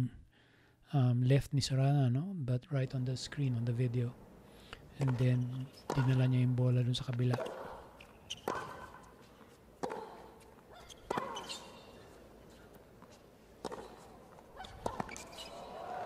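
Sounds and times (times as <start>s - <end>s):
rackets striking tennis ball: 5.0s - 16.0s
tennis ball bouncing on court: 5.0s - 16.0s.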